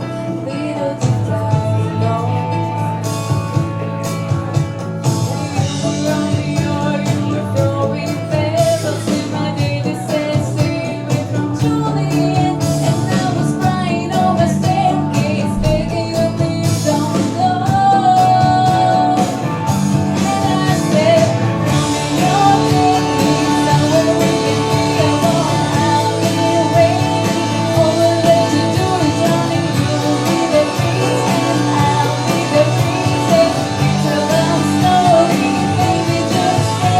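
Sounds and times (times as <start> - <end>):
guitar accompaniment: 0.0 - 36.9
person singing: 5.8 - 19.4, 20.2 - 36.9.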